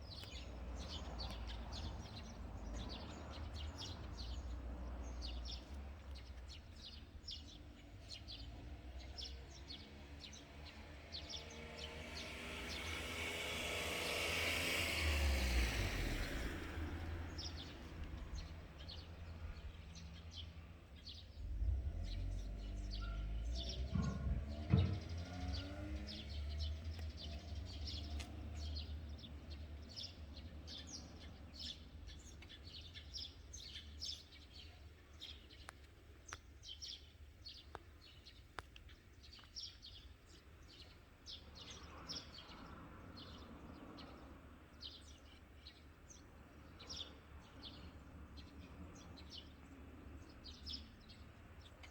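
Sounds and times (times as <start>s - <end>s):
low traffic rumble: 0.0s - 51.9s
small birds chirping: 0.0s - 51.9s
vehicle passing: 0.6s - 32.1s.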